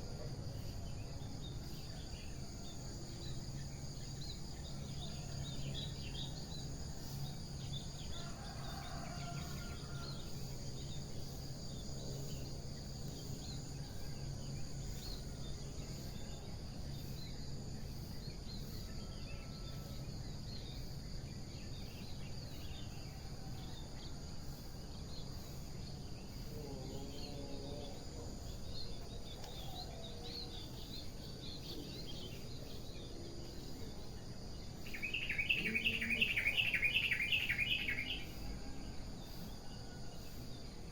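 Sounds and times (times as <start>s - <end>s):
insect chorus: 0.0s - 40.9s
faint bird chirps: 34.8s - 38.5s
lower-pitched bird calls: 35.0s - 38.4s.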